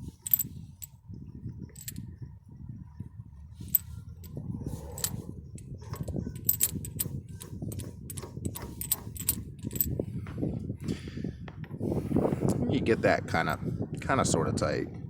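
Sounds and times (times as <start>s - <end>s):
low handling rumble: 0.0s - 10.8s
light metallic clicks: 5.0s - 5.2s.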